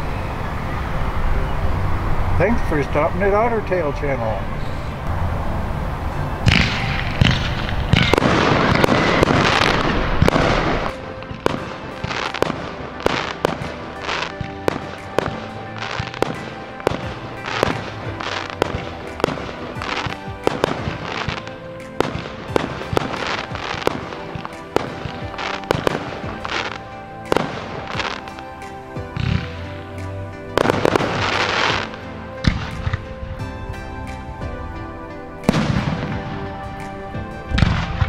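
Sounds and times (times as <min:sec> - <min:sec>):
music with steady beat: 0:06.1 - 0:38.0
fireworks bangs and crackle: 0:06.4 - 0:34.2, 0:35.4 - 0:38.0.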